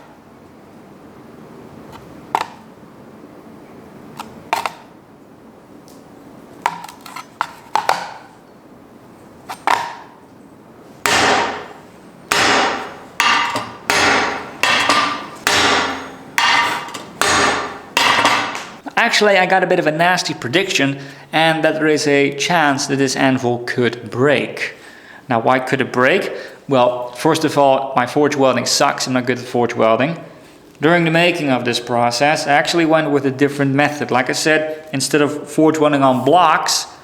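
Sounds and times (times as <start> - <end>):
hammer striking ringing anvil: 11.1 - 18.8.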